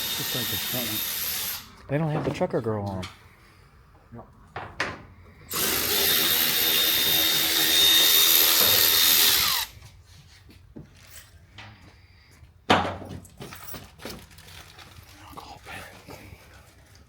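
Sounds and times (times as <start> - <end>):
power drill running: 0.0 - 1.7, 5.5 - 9.8.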